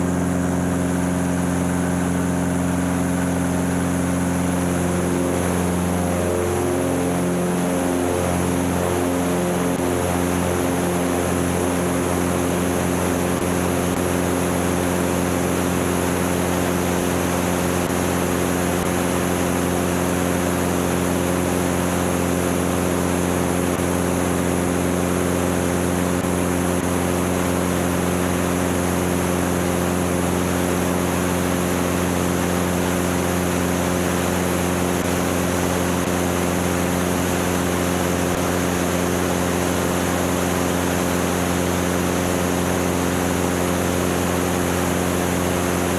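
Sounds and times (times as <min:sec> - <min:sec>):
propeller plane engine droning: 0:00.0 - 0:45.9.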